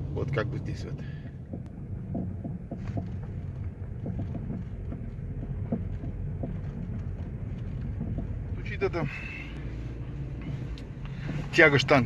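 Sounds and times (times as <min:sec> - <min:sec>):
car driving over rough road: 0:00.0 - 0:12.0
light suspension knocks: 0:01.0 - 0:09.4.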